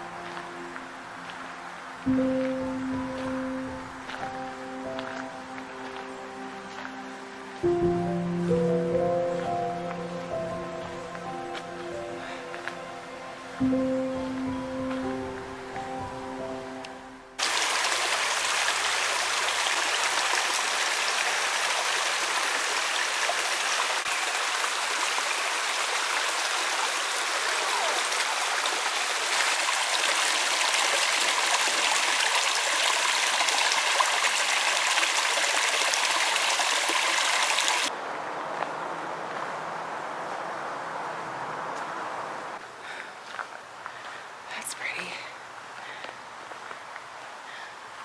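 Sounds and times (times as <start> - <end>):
stream of water rushing: 17.4 - 38.9.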